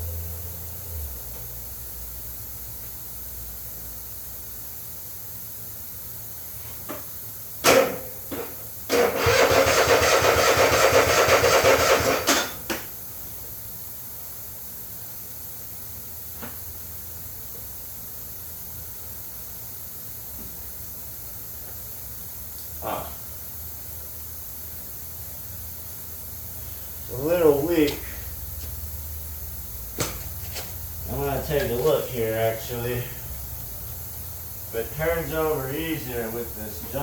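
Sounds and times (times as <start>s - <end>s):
electric starter cranking engine: 8.9s - 12.6s.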